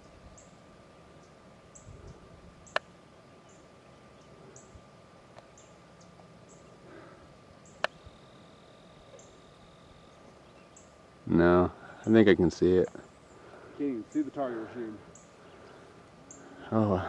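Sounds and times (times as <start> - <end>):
faint high chirp: 7.6 - 11.0.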